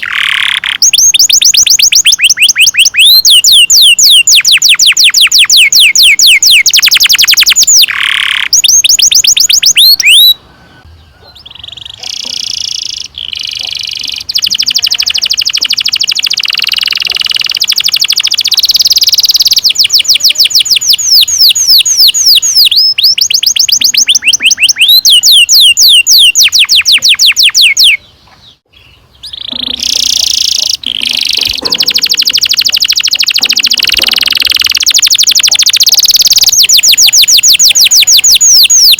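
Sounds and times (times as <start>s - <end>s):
canary singing rolled trills: 0.0s - 38.9s.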